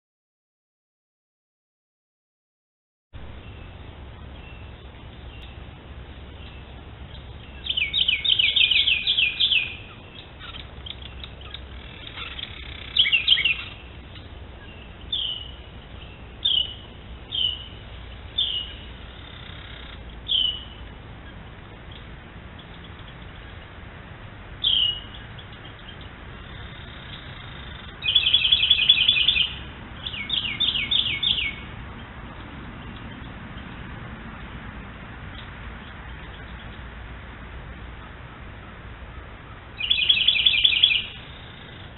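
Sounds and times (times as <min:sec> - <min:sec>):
rapid high bird chirps: 0:03.3 - 0:23.8, 0:24.6 - 0:33.9, 0:39.1 - 0:41.9.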